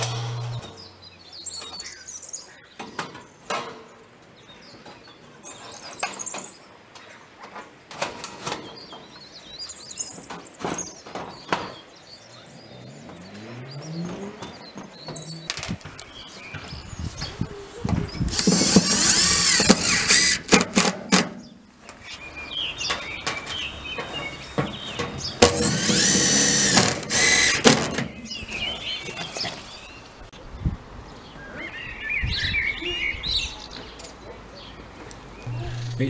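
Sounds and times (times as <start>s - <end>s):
small birds chirping: 8.7s - 20.4s, 21.4s - 35.6s.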